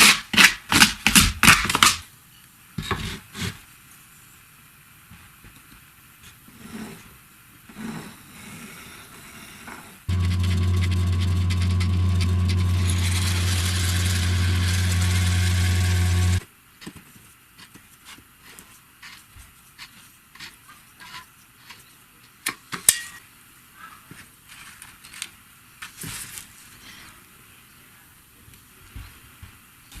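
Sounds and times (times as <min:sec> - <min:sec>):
motor humming: 0:10.1 - 0:16.4.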